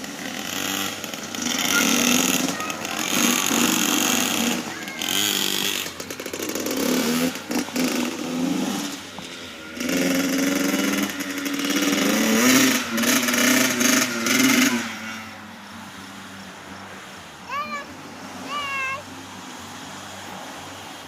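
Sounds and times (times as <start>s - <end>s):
small motorcycle engine revving: 0.0s - 16.0s.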